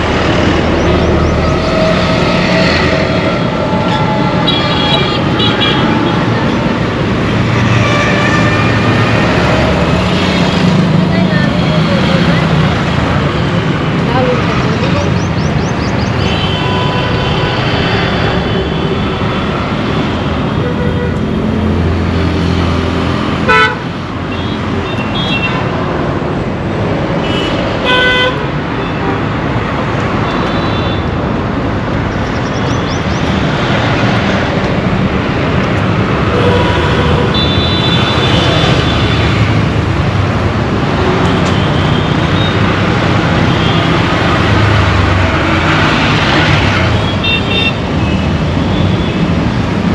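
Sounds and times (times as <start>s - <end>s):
road traffic engine and tyre noise: 0.0s - 49.9s
vehicle horns honking: 1.5s - 6.3s, 16.2s - 21.2s, 23.5s - 25.7s, 27.2s - 29.2s, 36.3s - 39.5s, 46.9s - 49.4s.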